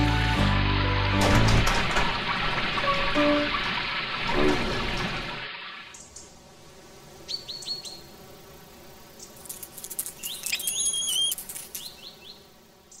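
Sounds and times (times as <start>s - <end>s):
birds chirping: 9.2s - 13.0s
whistled bird note: 10.3s - 11.4s.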